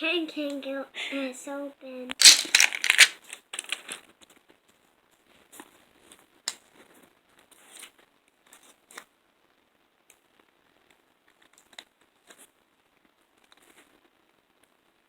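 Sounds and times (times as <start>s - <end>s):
plastic packaging crinkling: 2.2s - 4.0s.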